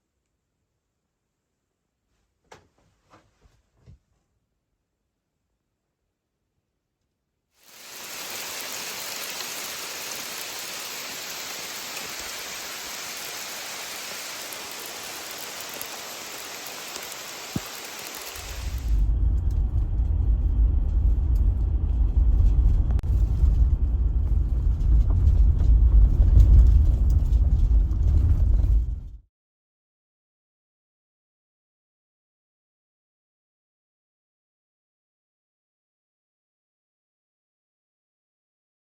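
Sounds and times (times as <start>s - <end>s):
rain hissing: 7.6s - 19.1s
loud low rumble: 18.6s - 29.2s.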